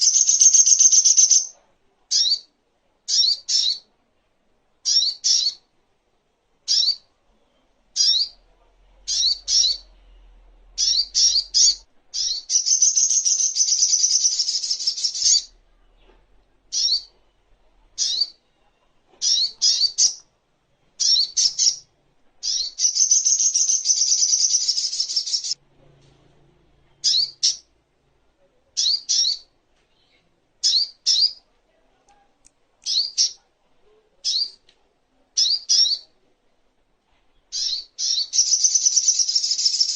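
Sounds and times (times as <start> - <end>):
bird chirping: 0.0 - 2.5, 3.1 - 3.9, 4.8 - 5.7, 6.6 - 20.3, 21.0 - 25.6, 26.8 - 27.8, 28.8 - 31.5, 32.8 - 33.4, 35.4 - 36.2, 37.3 - 39.9.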